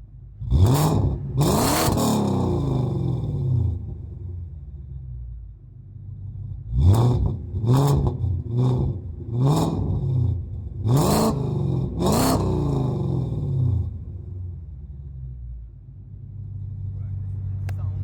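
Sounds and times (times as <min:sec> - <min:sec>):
car engine revving: 0:00.4 - 0:04.5, 0:06.5 - 0:15.1.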